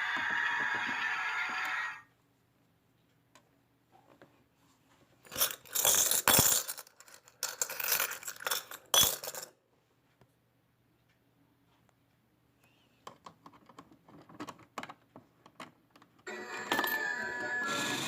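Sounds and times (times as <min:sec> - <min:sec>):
small hard objects clinking: 0:05.3 - 0:09.5.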